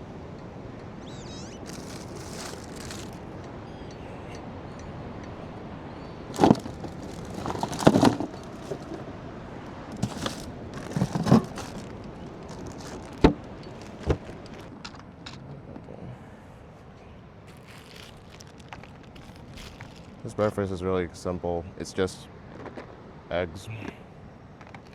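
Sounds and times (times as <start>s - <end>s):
gear knocking and clattering: 6.4s - 9.0s, 9.9s - 14.7s.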